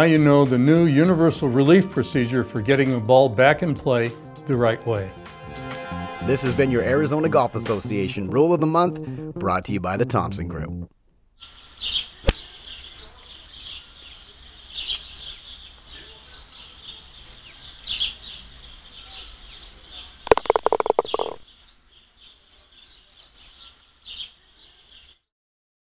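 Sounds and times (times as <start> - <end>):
small birds chirping: 11.4 - 25.3.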